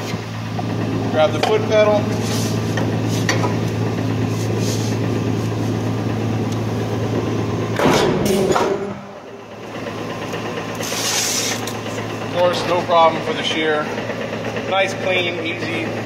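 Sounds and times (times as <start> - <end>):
mechanical shear humming: 0.0 - 16.0
blade shearing sheet metal: 10.7 - 11.9.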